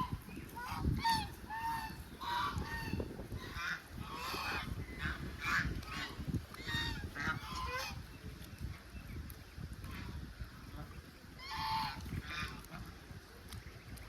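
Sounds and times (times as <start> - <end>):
waterfowl honking: 0.0 - 8.1, 11.4 - 12.7.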